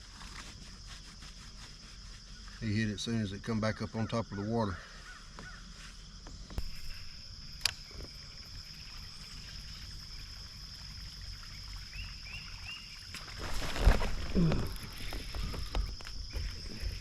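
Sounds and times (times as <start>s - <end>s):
high insect buzz: 4.8s - 17.0s.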